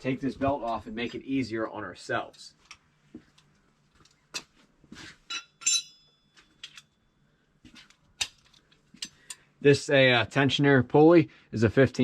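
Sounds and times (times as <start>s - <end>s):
metal hand tools clinking: 5.3s - 6.9s
sharp metallic ring: 5.3s - 7.2s.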